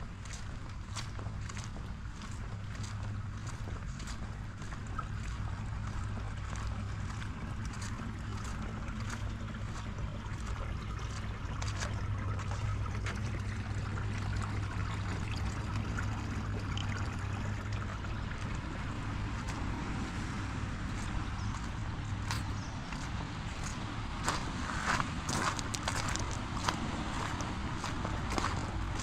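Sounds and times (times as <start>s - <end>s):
steady low rumble: 0.0s - 29.0s
raindrops ticking on umbrella: 25.1s - 29.0s.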